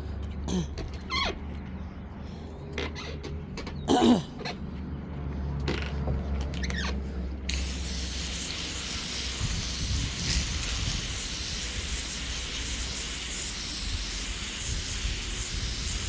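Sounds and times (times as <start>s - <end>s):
liquid spray hissing onto wood: 7.5s - 16.0s.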